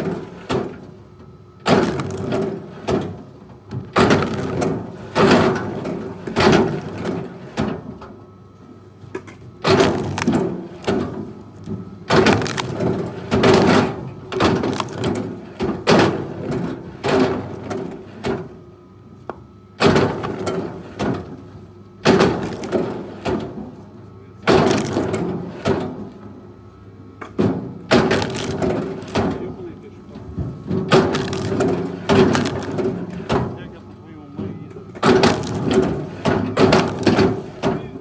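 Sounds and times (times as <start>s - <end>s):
wood cracking and splintering: 1.7s - 3.1s, 3.9s - 5.9s, 9.6s - 16.4s, 22.0s - 23.5s, 24.5s - 26.0s, 27.9s - 29.6s, 30.8s - 33.7s, 35.0s - 38.0s
machine engine drone: 27.8s - 38.0s.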